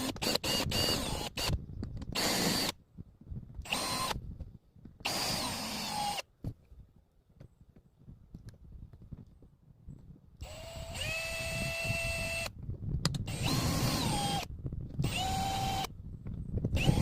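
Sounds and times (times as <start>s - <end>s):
power drill running in bursts: 5.1s - 6.2s, 13.3s - 14.5s, 15.1s - 15.9s, 16.8s - 17.0s.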